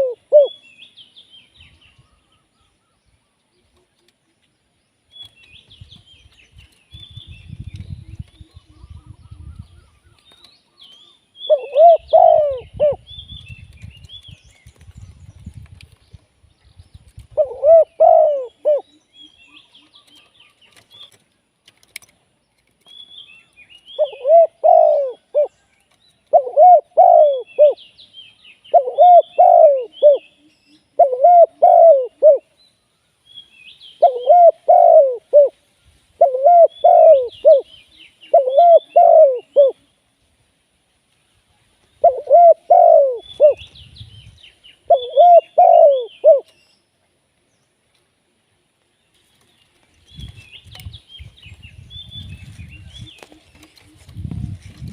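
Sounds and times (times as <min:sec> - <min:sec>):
dove cooing: 0:00.0 - 0:00.6, 0:11.5 - 0:13.1, 0:17.3 - 0:18.9, 0:24.0 - 0:25.5, 0:26.3 - 0:27.8, 0:28.7 - 0:30.3, 0:31.0 - 0:32.5, 0:34.0 - 0:35.6, 0:36.2 - 0:37.7, 0:38.3 - 0:39.8, 0:42.0 - 0:43.6, 0:44.9 - 0:46.5
small birds chirping: 0:00.0 - 0:40.4, 0:41.7 - 0:54.9.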